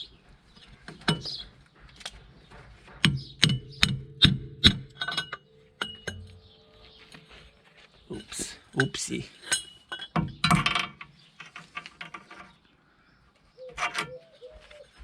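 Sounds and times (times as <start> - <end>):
hammer striking metal pipe: 3.0 - 6.4.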